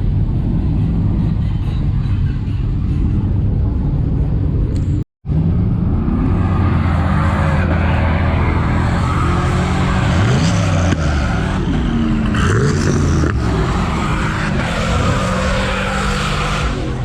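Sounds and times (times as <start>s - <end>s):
truck engine revving: 5.3s - 17.0s.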